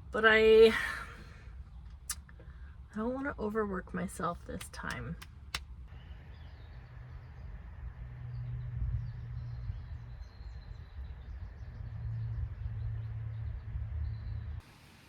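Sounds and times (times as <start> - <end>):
small birds chirping: 4.8 - 14.6.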